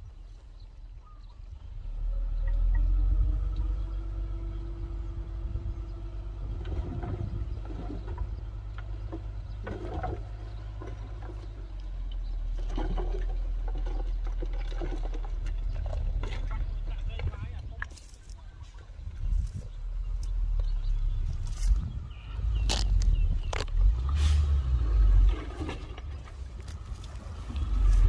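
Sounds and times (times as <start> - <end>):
steady engine tone: 1.5 - 12.2
heavy machinery rumbling: 1.5 - 28.0.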